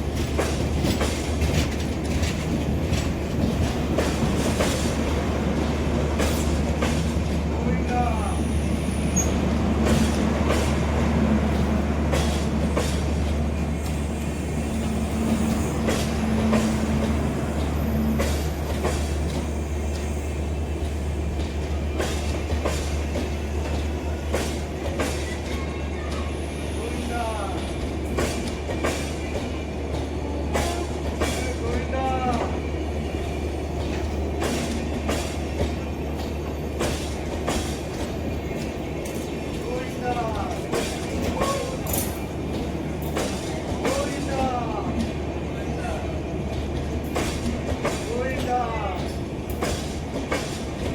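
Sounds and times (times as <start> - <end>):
train rolling past: 0.0 - 50.9
wheel squeal: 8.8 - 9.4.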